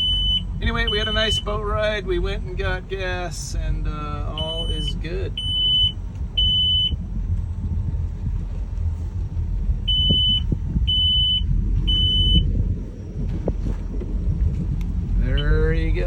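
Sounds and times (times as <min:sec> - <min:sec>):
high electronic beep: 0:00.0 - 0:01.5, 0:04.4 - 0:07.0, 0:09.9 - 0:12.5
boat engine rumbling: 0:00.0 - 0:16.0.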